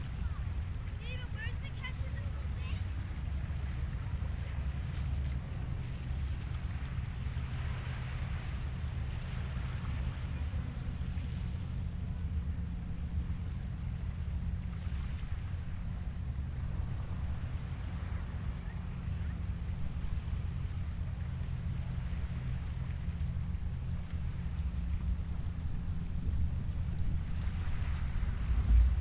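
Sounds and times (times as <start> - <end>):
small waves washing on beach: 0.0 - 29.0
wind rumble on microphone: 2.7 - 29.0
insect chirping: 7.0 - 29.0.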